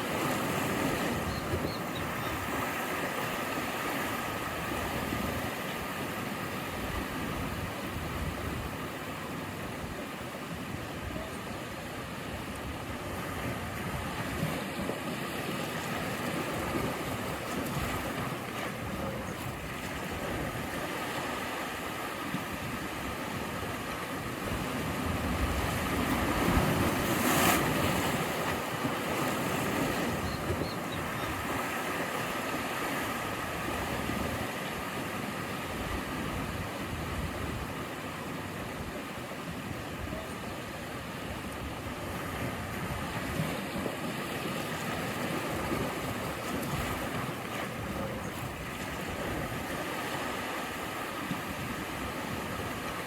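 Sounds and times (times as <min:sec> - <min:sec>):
ocean surf washing ashore: 0:00.0 - 0:53.0
wave breaking: 0:12.0 - 0:39.1.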